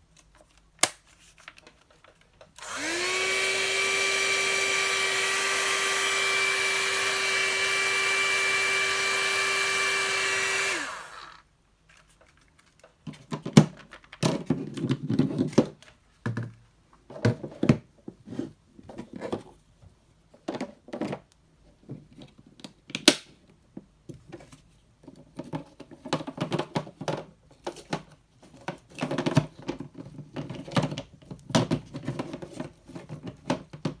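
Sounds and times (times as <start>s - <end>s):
hot air brush motor whining: 2.6s - 11.4s
clicks and knocks of handling: 11.9s - 17.9s, 24.1s - 34.0s.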